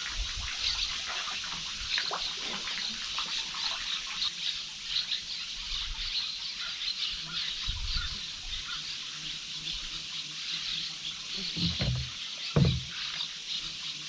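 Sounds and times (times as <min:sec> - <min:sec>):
water rippling and trickling: 0:00.0 - 0:14.0
low thud: 0:11.6 - 0:13.0.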